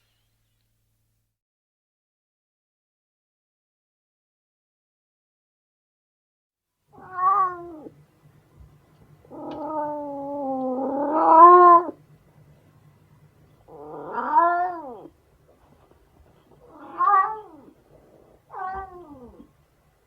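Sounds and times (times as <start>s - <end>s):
cat meowing: 6.9s - 7.9s, 9.3s - 12.0s, 13.7s - 15.1s, 16.6s - 17.8s, 18.5s - 19.5s.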